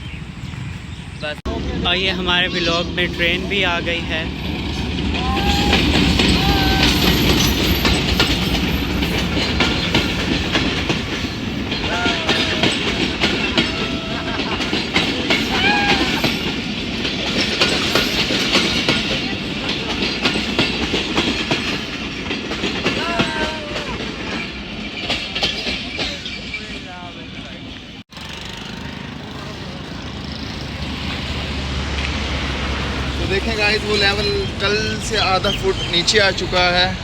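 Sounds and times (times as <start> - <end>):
train wheels clattering: 2.7 - 28.8.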